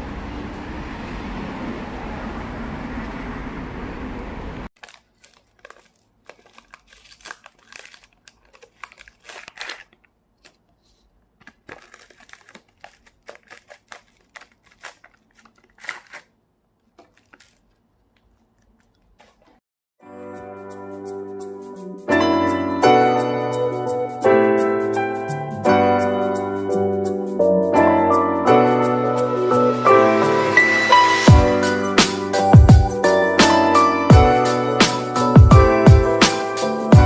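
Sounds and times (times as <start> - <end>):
handling clicks and rustles: 4.8 - 19.6
music: 20.0 - 37.0.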